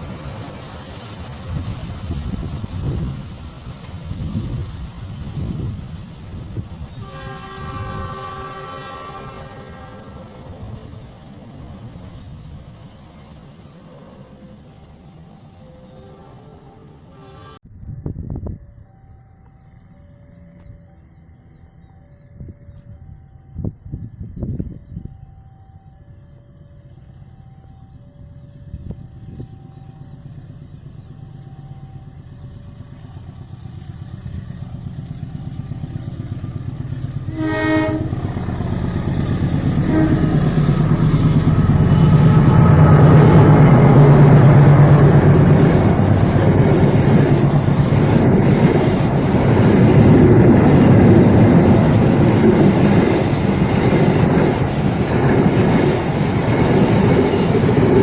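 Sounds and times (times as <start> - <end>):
train horn blast: 6.9 - 10.6, 37.2 - 48.1
locomotive engine rumble: 18.6 - 58.0.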